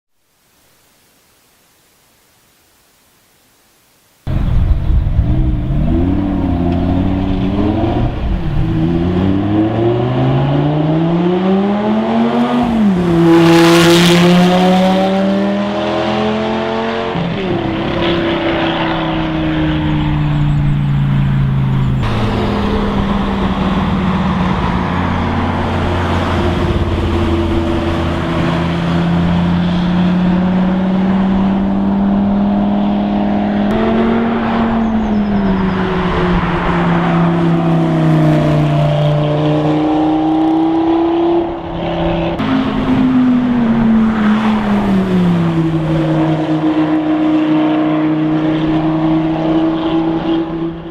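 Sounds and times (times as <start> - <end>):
sports car engine revving: 21.6 - 50.9.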